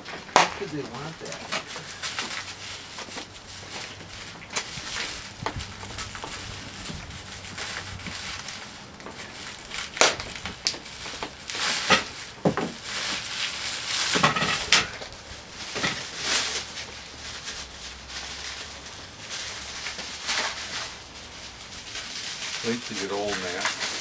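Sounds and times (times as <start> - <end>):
packaging rustling and crinkling: 0.0 - 24.0
parts knocking and clattering: 14.0 - 16.7.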